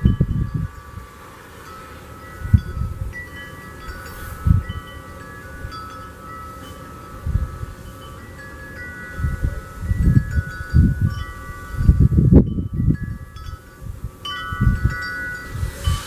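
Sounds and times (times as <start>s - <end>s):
wind chimes ringing: 0.0s - 16.0s
wind rumbling on microphone: 0.0s - 16.0s.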